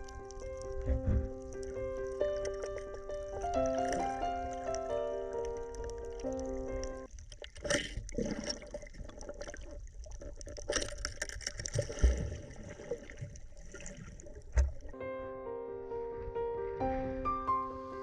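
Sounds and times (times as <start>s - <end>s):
water splashing and bubbling: 0.0s - 15.0s
low thumps: 0.6s - 2.0s.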